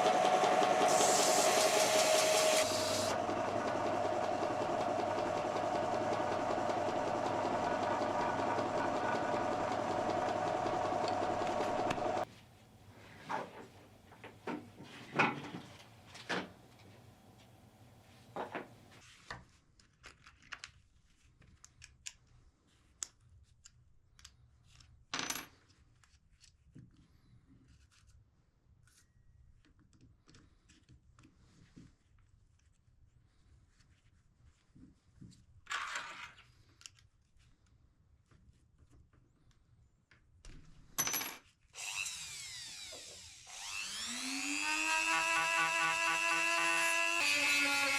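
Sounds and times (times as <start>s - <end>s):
power tool motor running: 0.0s - 12.2s, 41.8s - 47.9s.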